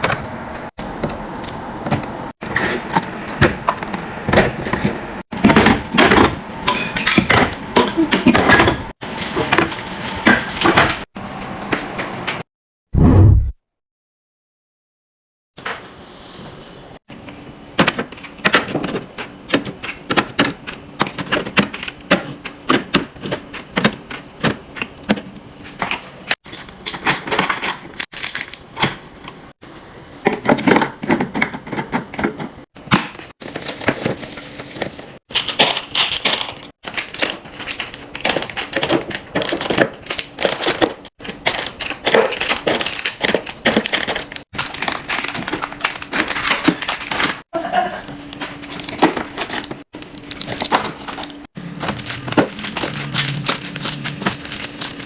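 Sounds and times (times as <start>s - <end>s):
plastic containers clattering: 30.2s - 47.4s, 48.4s - 55.0s
wrappers crinkling: 35.3s - 47.4s, 48.6s - 55.0s.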